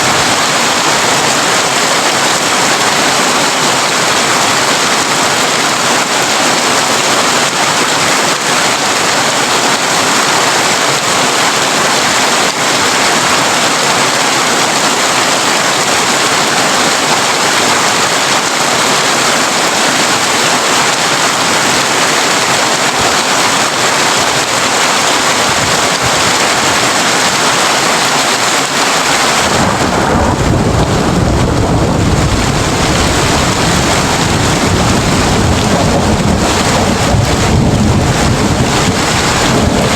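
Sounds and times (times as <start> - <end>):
heavy rain on a tin roof: 0.0 - 39.9
deep rumble of thunder: 29.4 - 39.9.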